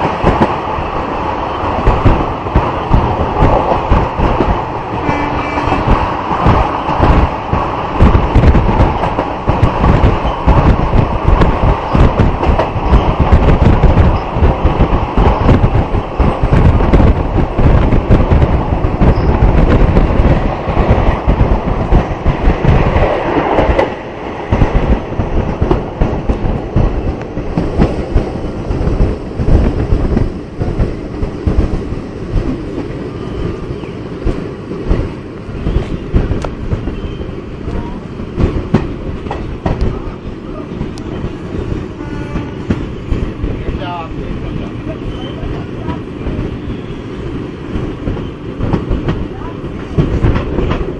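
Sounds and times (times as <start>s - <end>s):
train wheels rumbling on rail: 0.0s - 50.9s.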